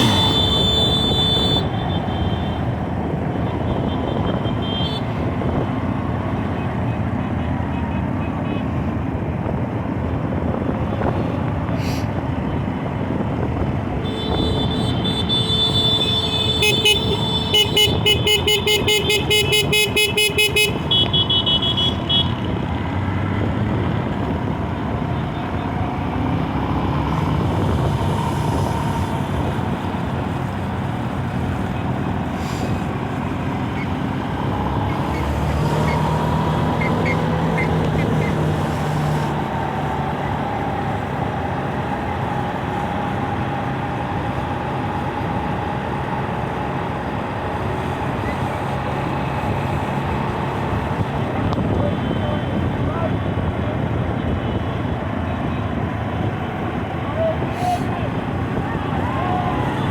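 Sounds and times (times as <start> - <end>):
vehicle horn honking: 0.0 - 2.7, 3.6 - 5.2, 14.0 - 22.5
traffic noise: 0.0 - 59.9.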